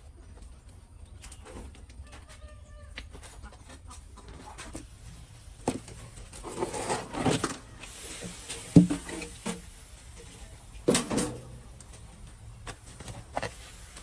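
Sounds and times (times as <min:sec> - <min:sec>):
chickens clucking: 0:01.4 - 0:14.0
low steady hum: 0:04.6 - 0:14.0.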